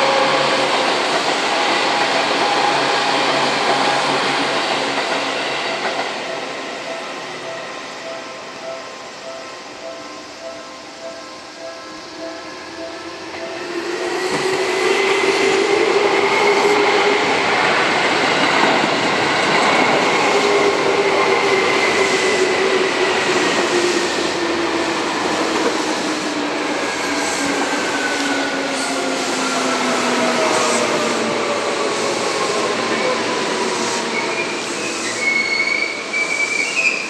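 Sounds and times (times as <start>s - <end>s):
train braking whine: 0.0s - 37.0s.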